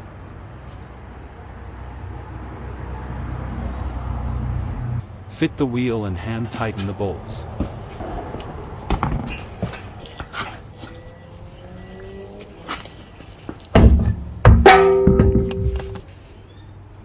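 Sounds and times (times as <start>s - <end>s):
heavy metallic thuds: 13.7s - 16.1s.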